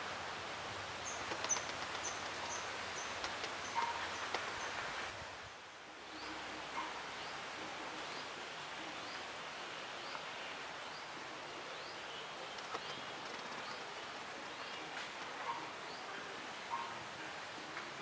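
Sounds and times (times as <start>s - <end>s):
outdoor background hiss: 0.0s - 18.0s
faint clicks: 1.1s - 4.8s, 12.5s - 13.8s.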